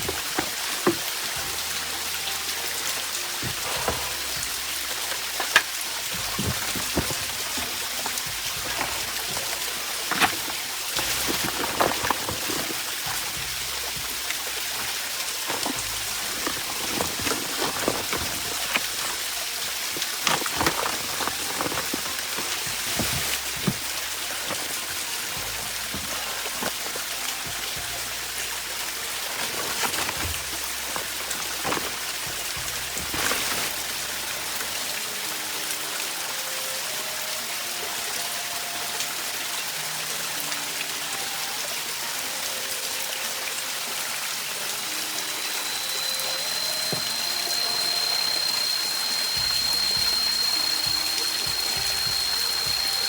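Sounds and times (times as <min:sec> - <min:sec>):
water hissing: 0:00.0 - 0:53.0
thin high whine: 0:44.7 - 0:53.0.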